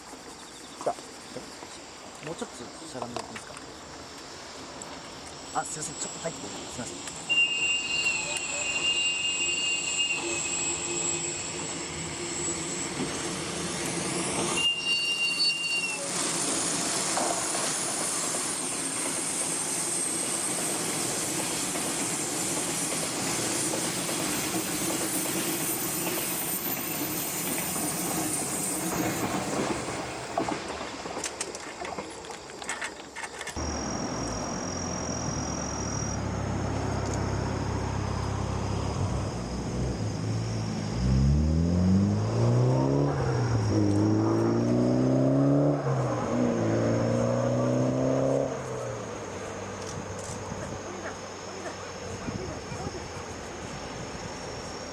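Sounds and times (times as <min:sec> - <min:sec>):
train wagons rumbling and clattering: 0:05.6 - 0:40.3
low engine hum: 0:33.6 - 0:54.4.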